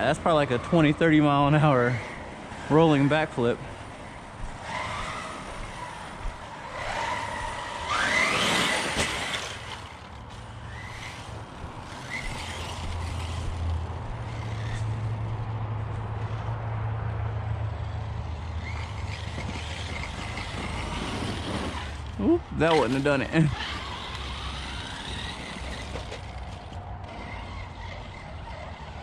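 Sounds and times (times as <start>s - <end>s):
electric motor whining: 3.9s - 15.4s, 18.6s - 29.0s.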